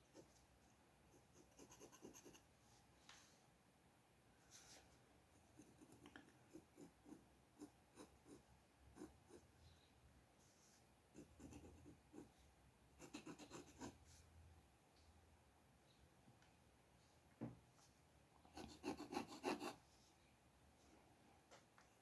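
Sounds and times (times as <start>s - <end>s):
drawing tool scratching on paper: 13.0s - 14.0s, 18.6s - 19.8s.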